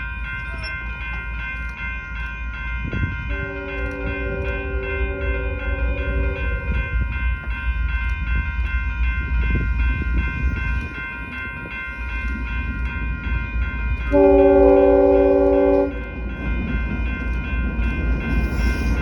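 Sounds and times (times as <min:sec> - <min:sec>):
crossing bell ringing: 0:00.0 - 0:19.0
train rumbling past: 0:00.0 - 0:19.0
locomotive horn blast: 0:03.3 - 0:06.8, 0:14.1 - 0:16.2.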